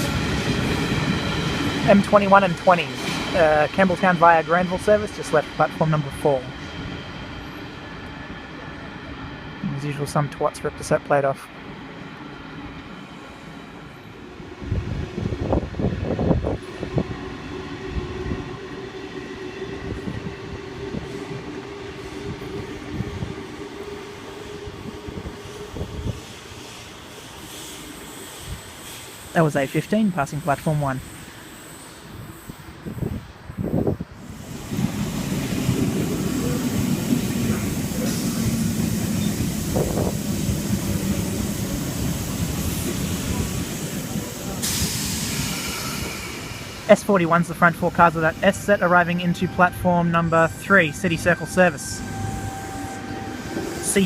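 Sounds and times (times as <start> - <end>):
electric train whine: 0.0 - 54.0.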